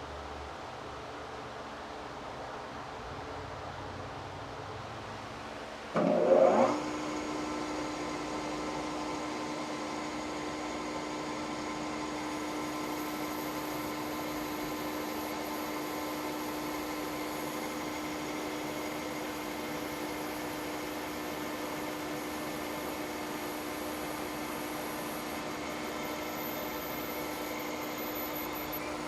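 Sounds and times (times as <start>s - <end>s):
milling machine spindle whine: 5.9s - 29.0s.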